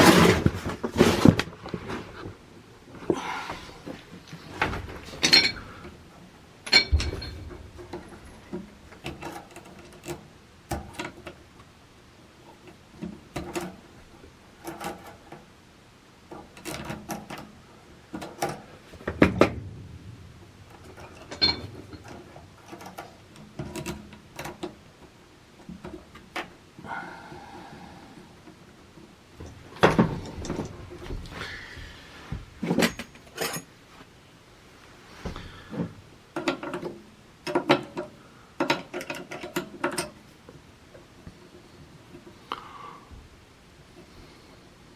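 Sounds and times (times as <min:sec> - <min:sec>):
hand tools clicking and knocking: 0:04.3 - 0:06.0, 0:06.6 - 0:11.4, 0:12.6 - 0:13.9, 0:16.3 - 0:19.6, 0:20.7 - 0:27.4, 0:35.3 - 0:40.2.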